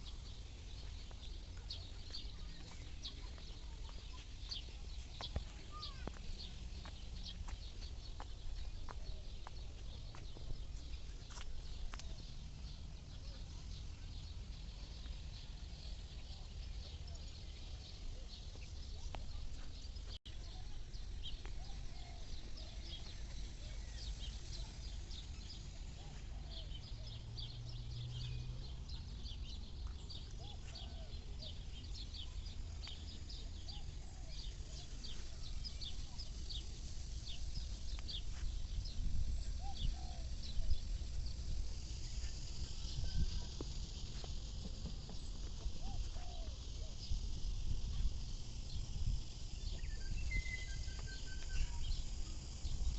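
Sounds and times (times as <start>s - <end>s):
birds chirping: 0.0s - 52.9s.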